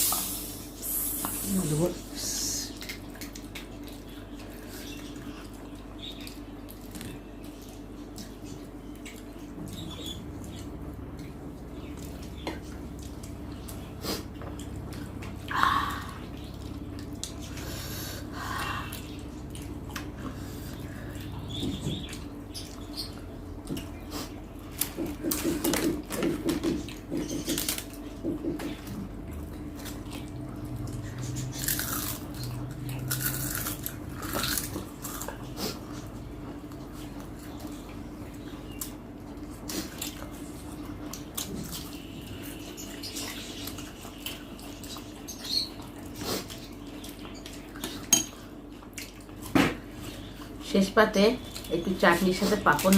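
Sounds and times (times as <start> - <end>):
steady low hum: 0.0 - 52.9
wet chewing and lip smacks: 2.7 - 15.6, 16.3 - 17.6, 29.4 - 50.6.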